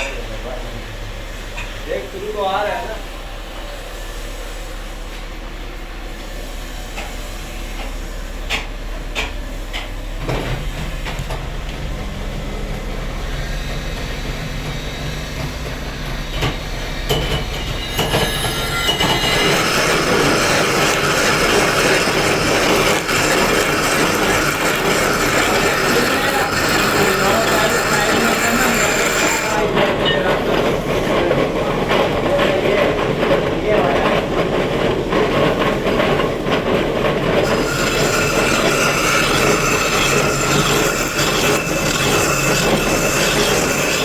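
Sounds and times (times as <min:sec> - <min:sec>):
machine humming: 0:00.0 - 0:31.9, 0:37.4 - 0:44.0
harsh grinding with high squeal: 0:13.1 - 0:30.4, 0:37.4 - 0:44.0.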